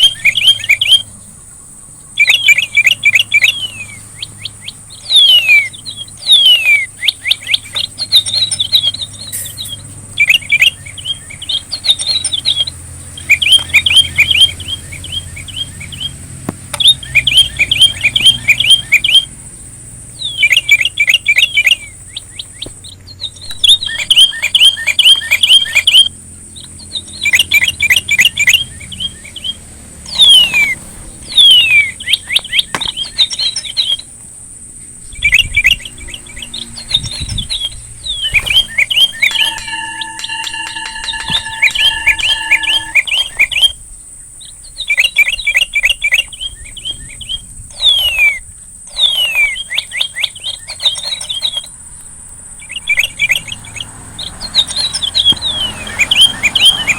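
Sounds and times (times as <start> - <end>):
bird chirping trills and whistles: 0.0 - 56.9
thin high-pitched whine: 36.8 - 43.9.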